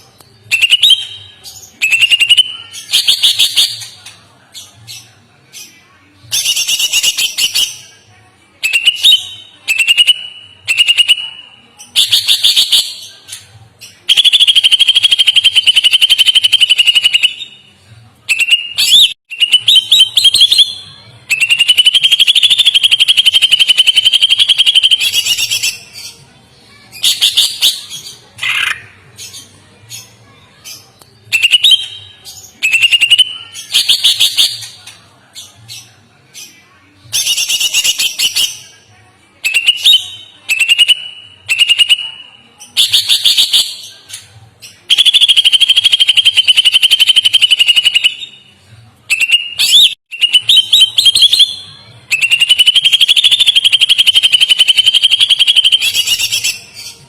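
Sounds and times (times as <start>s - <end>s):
songbird singing rapid phrases: 0.4s - 4.0s, 6.3s - 7.9s, 8.6s - 17.6s, 18.3s - 26.2s, 26.8s - 38.8s, 39.4s - 48.4s, 49.1s - 57.0s
chattering bird trills: 27.0s - 30.8s.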